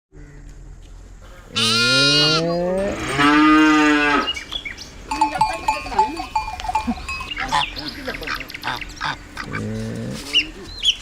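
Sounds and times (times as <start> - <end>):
cattle mooing: 1.5 - 4.4, 7.4 - 10.3.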